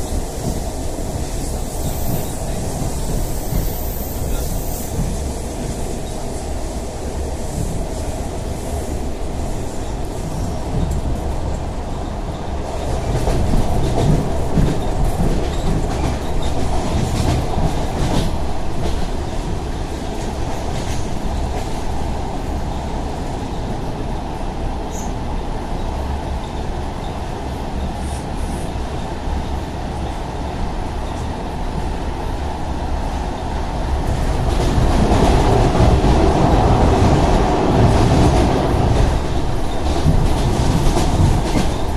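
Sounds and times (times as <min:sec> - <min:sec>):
train wheels clattering over rail joints: 0:09.9 - 0:22.0, 0:34.1 - 0:41.9.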